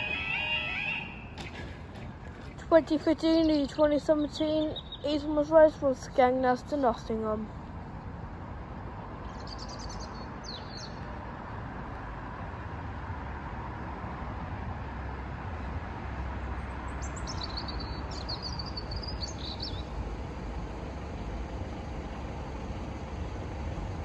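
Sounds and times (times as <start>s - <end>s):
small bird chirping: 3.4s - 5.4s, 9.2s - 11.0s, 17.0s - 19.9s.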